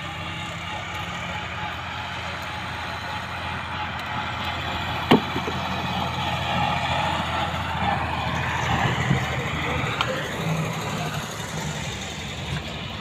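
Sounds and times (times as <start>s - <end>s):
diesel engine running: 0.0s - 13.0s
sharp knock: 5.1s - 5.6s.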